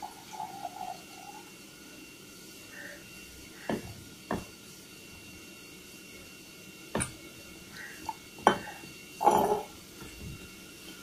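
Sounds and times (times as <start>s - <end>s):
scraping clatter of dishes: 9.2s - 9.7s.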